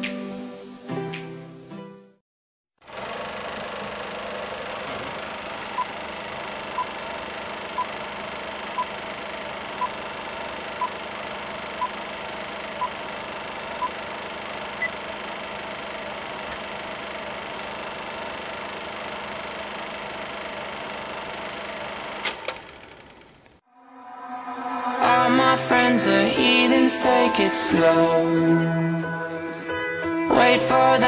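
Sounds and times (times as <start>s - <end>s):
film projector rattling: 2.8s - 23.6s.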